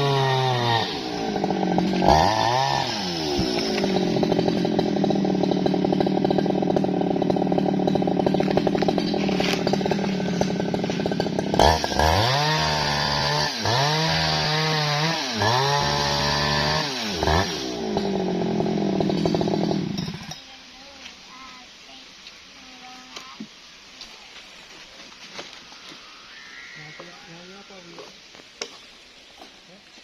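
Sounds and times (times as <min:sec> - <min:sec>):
chainsaw engine revving: 0:00.0 - 0:20.4.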